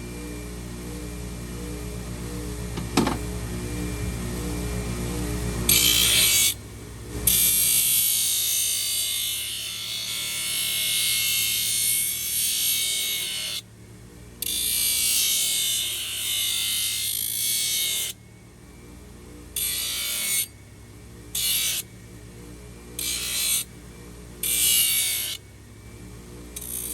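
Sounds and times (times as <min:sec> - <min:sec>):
power tool grinding hoof: 0:05.7 - 0:06.6.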